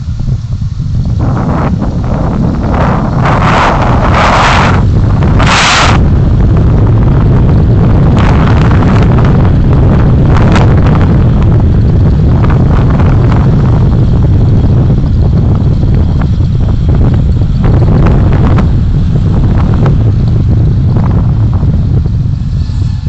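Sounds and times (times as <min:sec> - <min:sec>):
road and wind noise: 0:00.0 - 0:23.0.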